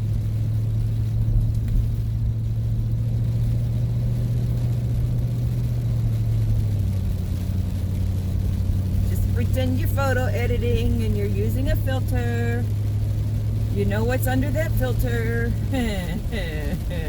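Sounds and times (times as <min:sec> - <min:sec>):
van engine and road noise: 0:00.0 - 0:17.0.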